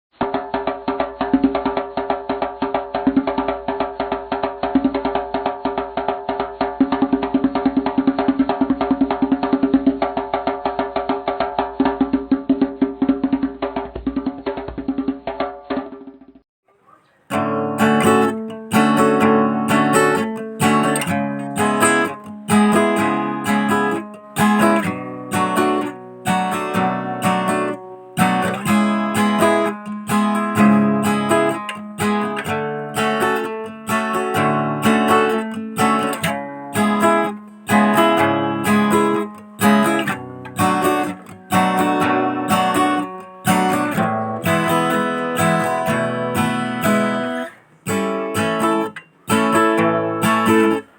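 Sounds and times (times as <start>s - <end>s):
acoustic guitar strumming: 17.3s - 50.9s.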